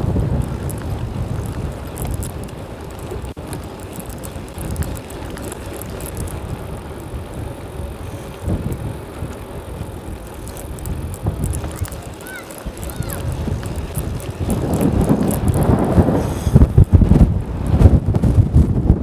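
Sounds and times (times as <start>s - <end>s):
bicycle tyre and road noise: 0.0s - 19.0s
wind buffeting microphone: 0.0s - 19.0s.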